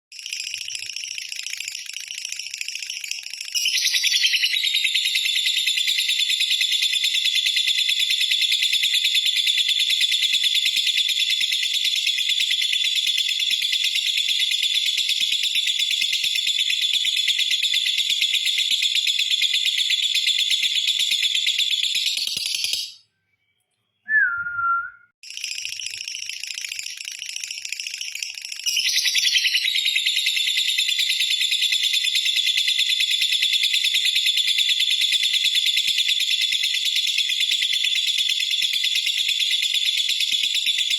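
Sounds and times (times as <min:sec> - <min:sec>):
short falling whistle: 0:24.1 - 0:25.1.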